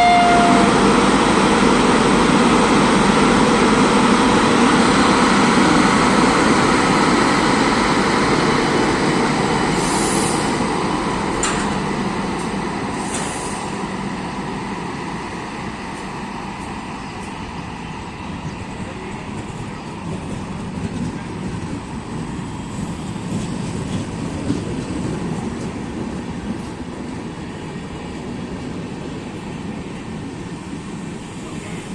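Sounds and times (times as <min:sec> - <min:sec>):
train coaches rolling on track: 0:00.0 - 0:31.9.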